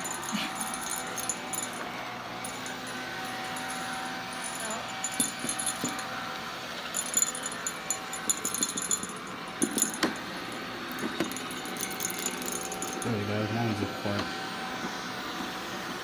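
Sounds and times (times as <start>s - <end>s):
light rattles and clinks: 0.0s - 13.9s
robot vacuum cleaner humming: 9.4s - 16.0s.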